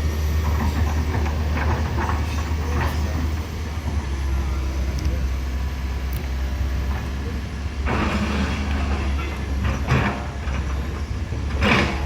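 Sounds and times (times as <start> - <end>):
heavy vehicle engine rumbling: 0.0 - 12.0
faint voices: 2.0 - 8.5.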